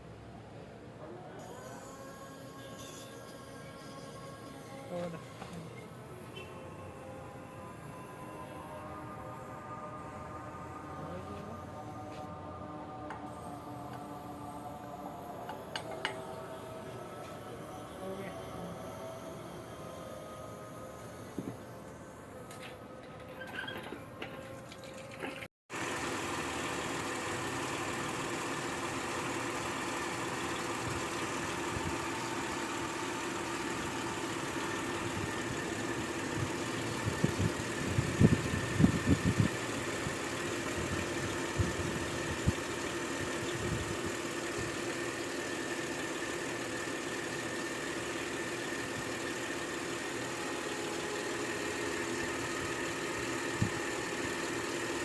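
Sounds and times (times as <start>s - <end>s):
car engine idling: 25.8s - 55.0s.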